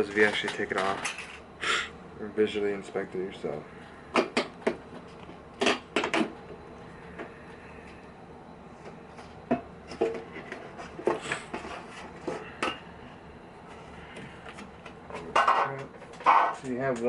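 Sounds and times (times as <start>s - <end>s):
clicks and clatter of parts: 0.2s - 1.4s, 14.5s - 17.0s.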